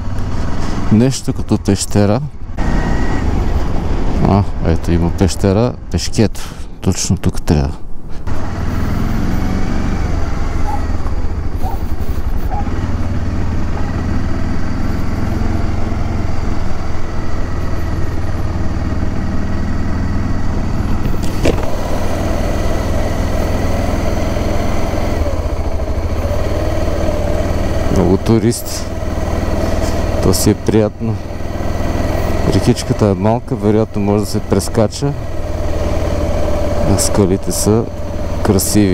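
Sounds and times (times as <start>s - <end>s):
motorcycle engine running: 8.2s - 38.9s.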